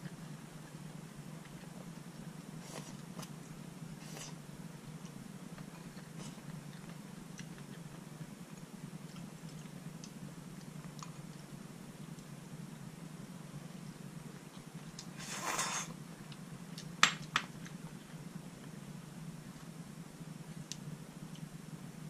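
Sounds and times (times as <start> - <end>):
soft chewing and mouth clicks: 0.0 - 12.3, 13.7 - 18.8
steady low hum: 0.0 - 22.0.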